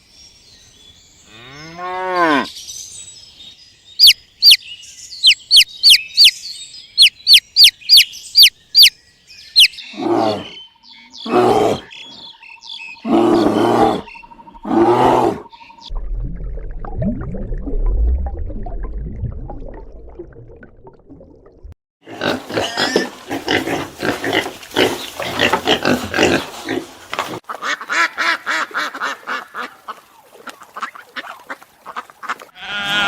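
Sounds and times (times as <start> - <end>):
rapid repeated animal calls: 5.2 - 6.3, 7.0 - 8.9.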